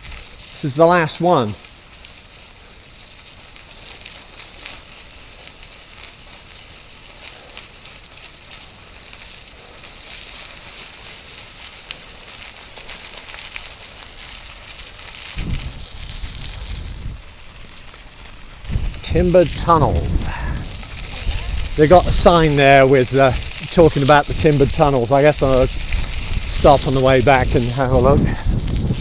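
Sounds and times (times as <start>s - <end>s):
bicycle tyres on gravel: 0.0s - 29.0s
low rumble: 15.4s - 23.6s.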